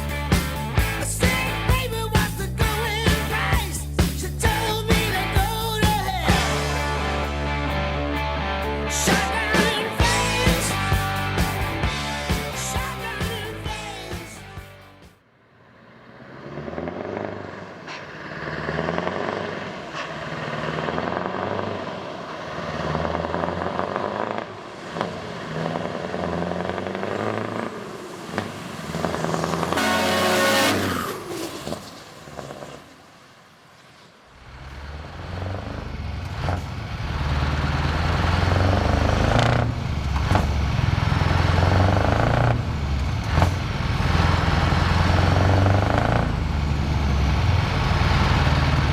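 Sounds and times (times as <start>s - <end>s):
diesel truck engine accelerating: 0.0s - 48.9s
truck engine running loud and low: 0.0s - 48.9s
short high-pitched sound: 29.2s - 31.5s.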